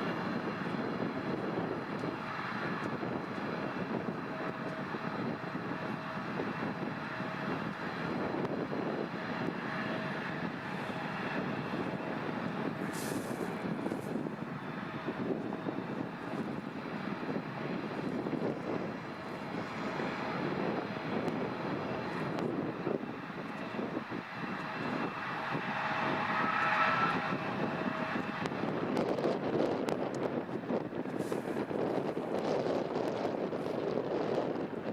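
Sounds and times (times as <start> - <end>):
airliner engines rumbling: 0.0 - 34.9.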